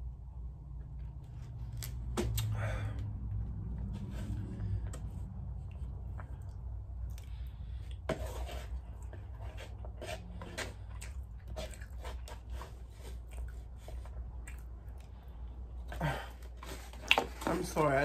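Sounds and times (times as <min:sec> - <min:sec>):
low hum: 0:00.0 - 0:08.0
chewing and lip smacking: 0:05.7 - 0:08.0, 0:10.8 - 0:12.4, 0:13.1 - 0:15.5.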